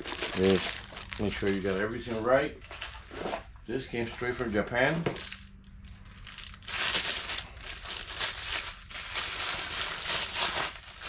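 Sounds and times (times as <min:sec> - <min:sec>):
plastic packaging crinkling: 0:00.0 - 0:03.1, 0:04.9 - 0:11.0.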